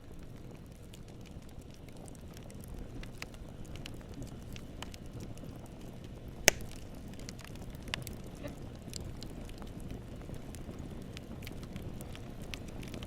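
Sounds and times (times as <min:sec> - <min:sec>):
campfire burning: 0:00.0 - 0:13.0
loud fire pop: 0:06.4 - 0:06.9.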